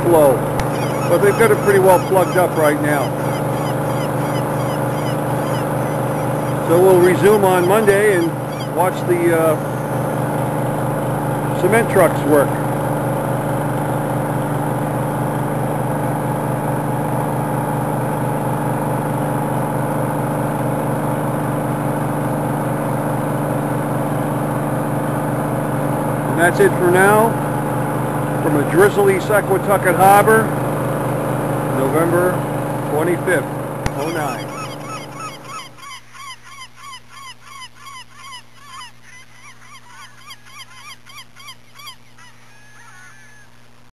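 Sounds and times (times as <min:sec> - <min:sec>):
pumps running with mechanical drone: 0:00.0 - 0:35.8
steady low hum: 0:00.0 - 0:43.9
geese honking: 0:00.2 - 0:10.8, 0:33.9 - 0:43.6.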